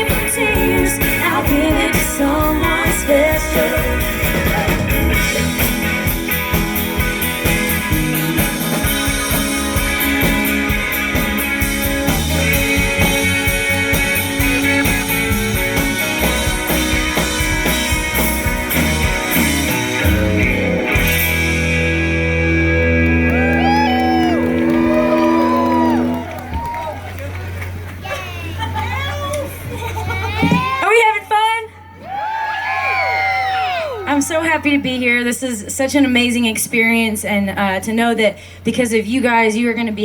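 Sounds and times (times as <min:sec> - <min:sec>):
person singing: 0:00.0 - 0:04.9
rock-country band over a pa: 0:00.0 - 0:31.2.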